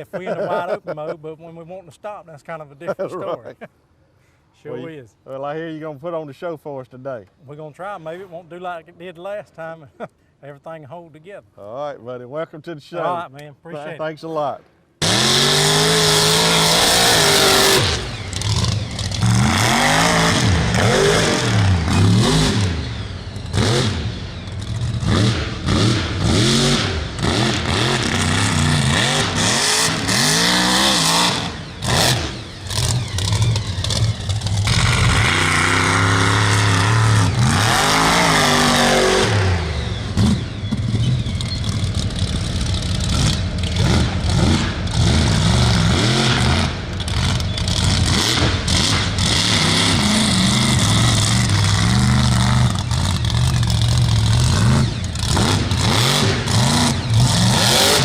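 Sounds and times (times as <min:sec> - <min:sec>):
race truck engine revving: 0:15.0 - 0:58.0.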